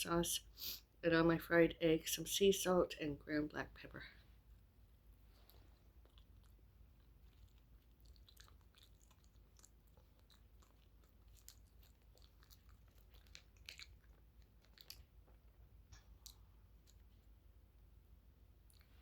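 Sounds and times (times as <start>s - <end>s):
person chewing: 4.4s - 17.6s, 18.6s - 19.0s
small crunches: 5.3s - 17.1s.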